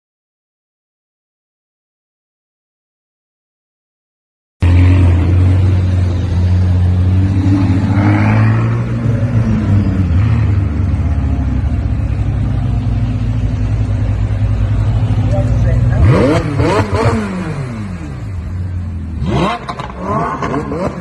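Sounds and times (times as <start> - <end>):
car engine deep steady note: 4.6 - 21.0.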